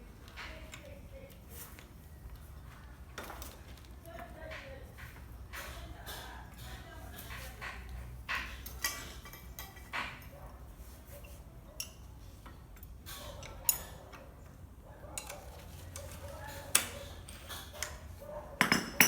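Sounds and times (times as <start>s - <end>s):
tools and metal parts clicking: 5.6s - 10.4s, 11.2s - 14.3s, 15.1s - 19.0s.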